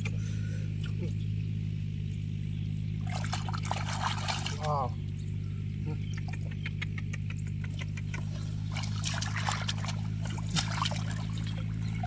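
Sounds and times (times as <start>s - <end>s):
steady low hum: 0.0s - 12.0s
water splashing and trickling: 2.9s - 5.2s, 7.7s - 12.0s.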